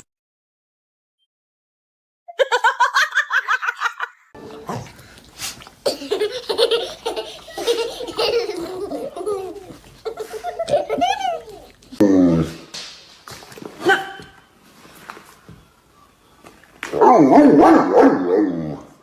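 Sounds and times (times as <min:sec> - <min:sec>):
person laughing: 0:05.8 - 0:11.8.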